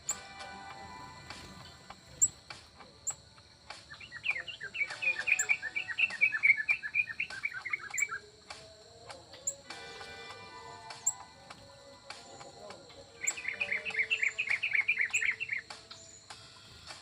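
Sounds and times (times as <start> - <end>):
small bird twittering: 0.0 - 17.0.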